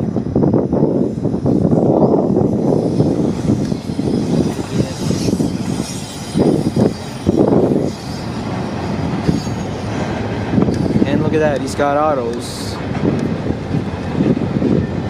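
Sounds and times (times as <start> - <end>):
freight train rolling on rails: 0.0 - 15.0
wind gusts on microphone: 0.0 - 15.0
wheel squeal: 0.9 - 11.6.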